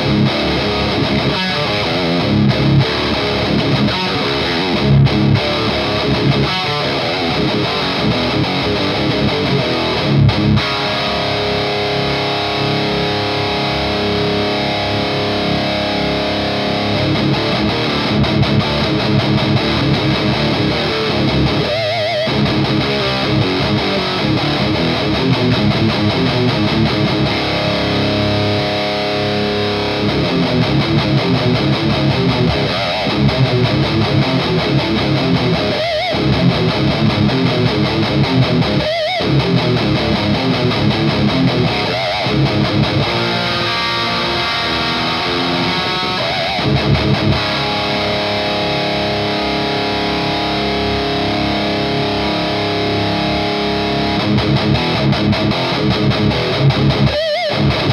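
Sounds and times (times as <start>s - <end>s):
distorted electric guitar: 0.0s - 57.9s.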